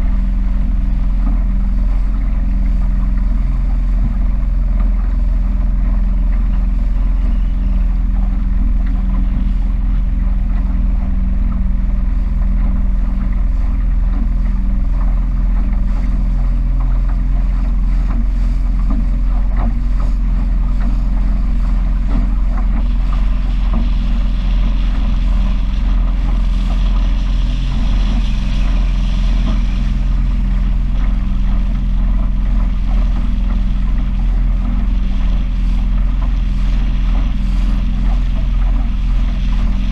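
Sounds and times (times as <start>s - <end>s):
powerboat engine humming: 0.0s - 39.9s.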